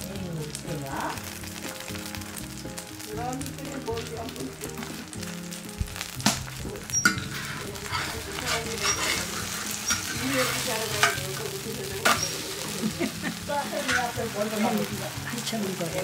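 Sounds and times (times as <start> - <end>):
batter sizzling in oil: 0.0 - 16.0
ladle and spatulas scraping pan: 6.9 - 16.0.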